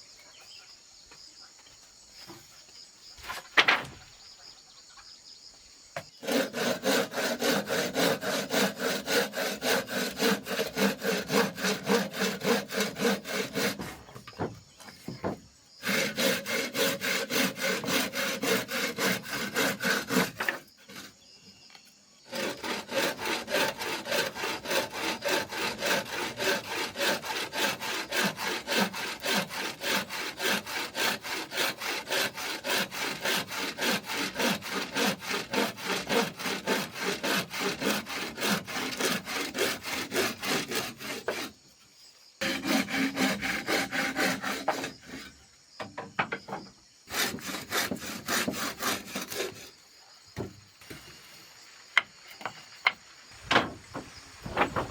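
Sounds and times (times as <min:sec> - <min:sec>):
hand saw cutting wood: 0:06.2 - 0:21.2, 0:22.3 - 0:41.6, 0:42.4 - 0:45.4, 0:47.1 - 0:49.7, 0:53.5 - 0:54.9.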